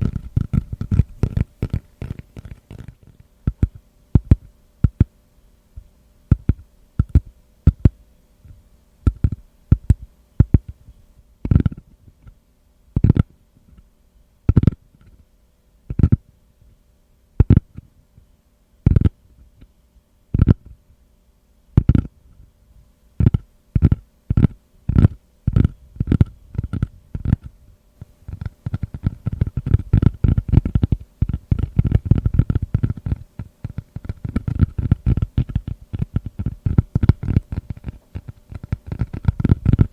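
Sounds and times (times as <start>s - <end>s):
tapping on a woven mat: 6.3s - 8.0s.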